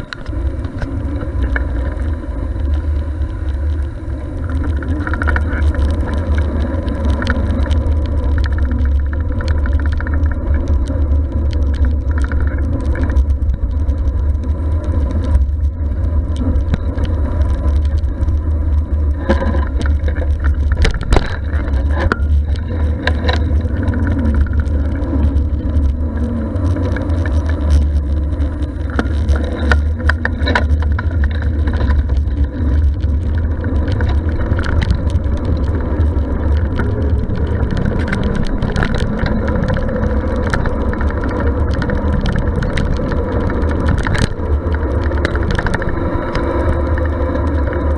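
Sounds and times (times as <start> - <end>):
bicycle clicks and rattles: 0.0 - 47.9
wind and road rumble: 0.0 - 47.9.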